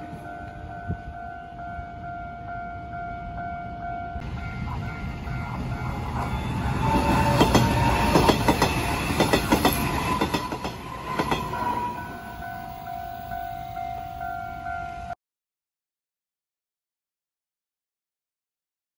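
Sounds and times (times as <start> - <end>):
level crossing warning tone: 0.0 - 15.2
train motor whine: 4.3 - 12.8
train wheels clacking: 4.5 - 12.4.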